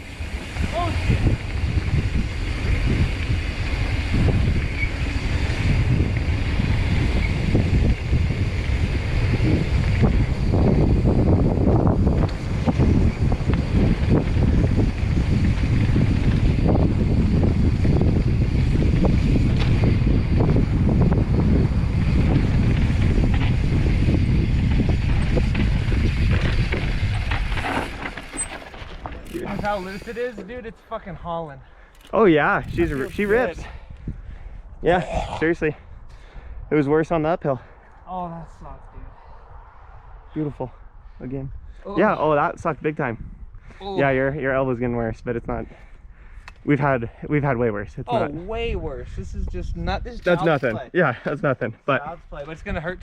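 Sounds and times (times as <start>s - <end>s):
bike rattling on rough ground: 0.0s - 30.6s, 31.9s - 33.7s, 50.1s - 50.8s
steady rumble of riding: 0.0s - 34.8s
wind buffeting microphone: 0.0s - 53.0s
bike rattling over rocks: 22.2s - 30.5s, 32.0s - 33.6s.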